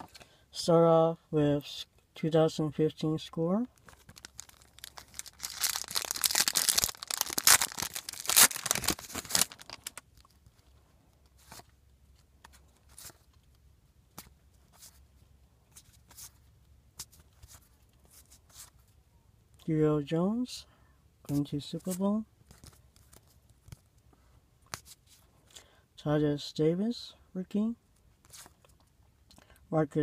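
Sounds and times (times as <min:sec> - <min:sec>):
wrapper tearing and crinkling: 0:03.9 - 0:10.3
faint clicks of cards handled: 0:09.8 - 0:15.0, 0:21.3 - 0:25.6.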